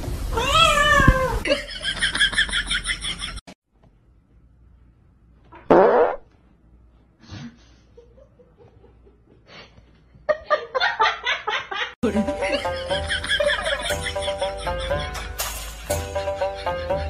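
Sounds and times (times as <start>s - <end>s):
dog farting: 5.6s - 6.2s.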